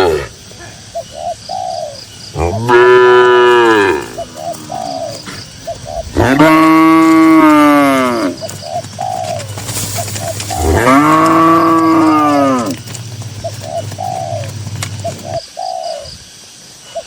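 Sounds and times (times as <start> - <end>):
cattle mooing: 2.4 - 5.4, 6.2 - 8.6, 10.5 - 15.3.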